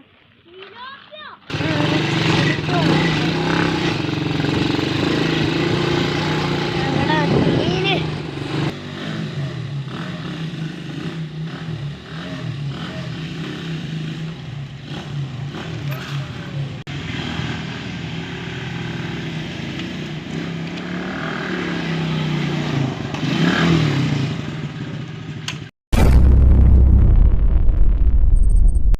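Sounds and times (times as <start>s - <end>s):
quad bike engine revving: 1.5s - 25.7s.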